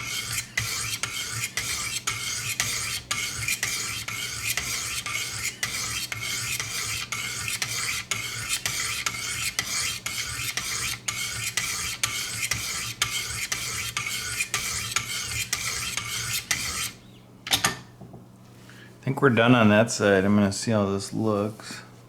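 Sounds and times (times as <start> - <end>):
sharpening stone scraping knife blade: 0.0 - 17.0.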